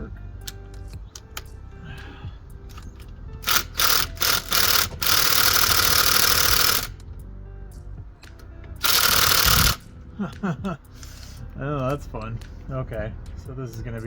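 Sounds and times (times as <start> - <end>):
power impact wrench: 2.7 - 7.0, 8.8 - 9.8.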